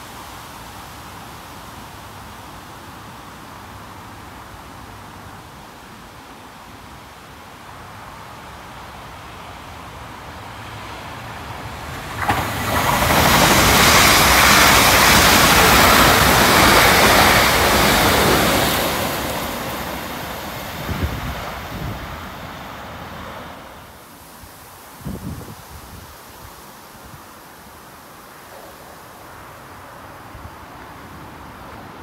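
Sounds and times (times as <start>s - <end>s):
electric train approaching: 10.3s - 24.0s.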